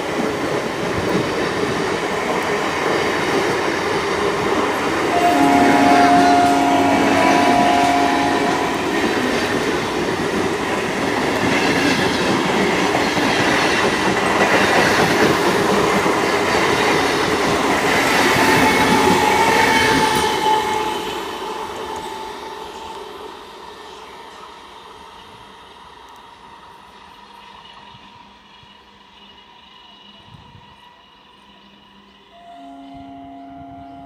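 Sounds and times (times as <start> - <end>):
train wheels clattering on rails: 0.0 - 22.9
steady tone: 5.1 - 11.0.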